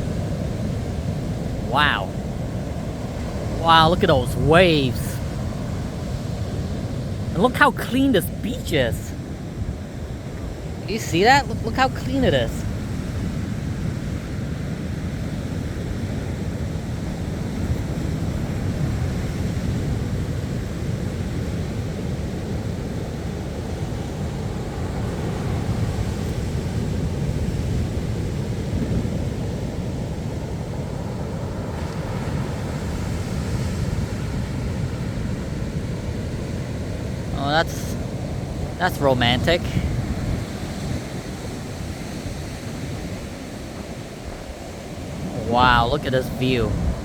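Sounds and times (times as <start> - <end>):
wind rumbling on microphone: 39.6 - 45.6.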